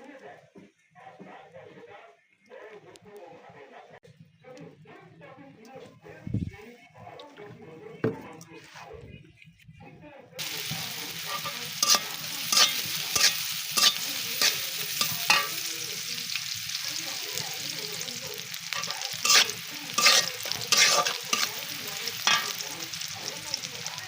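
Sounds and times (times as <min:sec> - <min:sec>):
spatula scraping a pan: 0:10.4 - 0:15.7, 0:17.9 - 0:23.0
food sizzling in hot oil: 0:10.4 - 0:24.0.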